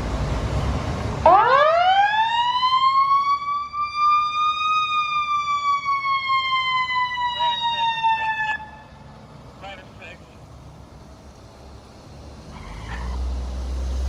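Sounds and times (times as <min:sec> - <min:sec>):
fire truck siren wailing: 0:00.0 - 0:14.0
road and engine noise: 0:00.0 - 0:14.0.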